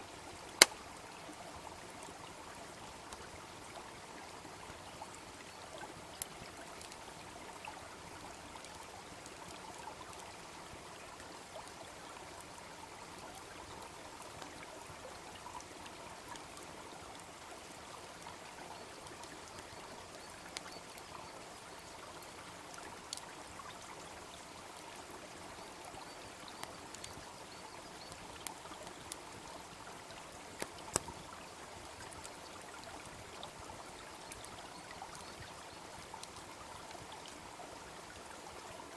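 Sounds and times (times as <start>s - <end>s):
babbling brook: 0.0s - 38.9s
wood fire crackling and popping: 30.6s - 31.2s.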